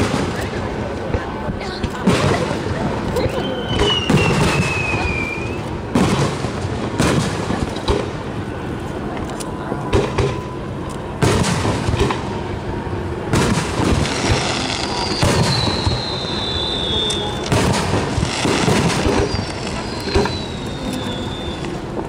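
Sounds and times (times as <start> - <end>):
firework whistle sliding down: 3.4 - 5.8, 14.5 - 17.5, 19.0 - 22.0
firework shells booming: 3.7 - 8.4, 11.2 - 12.6, 13.2 - 22.0.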